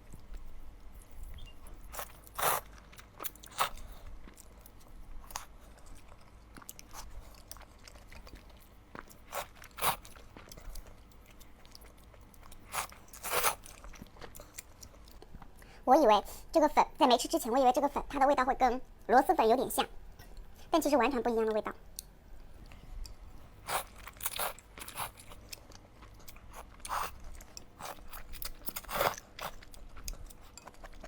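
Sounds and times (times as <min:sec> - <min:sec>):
person chewing: 0:01.0 - 0:15.6, 0:21.9 - 0:31.0.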